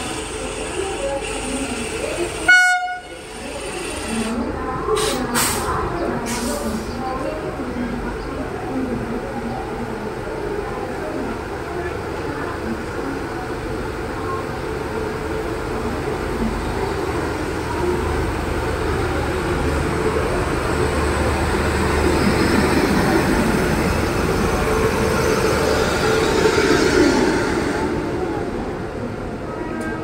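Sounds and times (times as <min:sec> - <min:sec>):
electric locomotive passing: 0:00.0 - 0:30.0
train coaches rolling past: 0:00.0 - 0:30.0.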